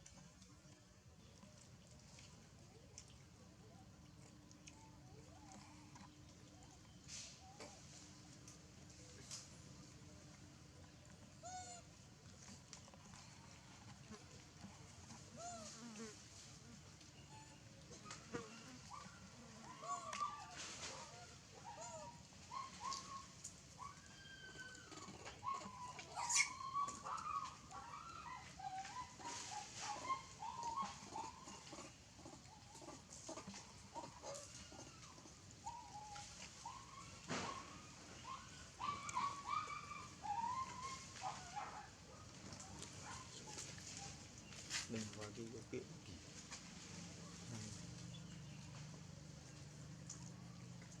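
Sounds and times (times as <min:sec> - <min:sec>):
baby monkey squeaking and chirping: 0:24.9 - 0:28.0.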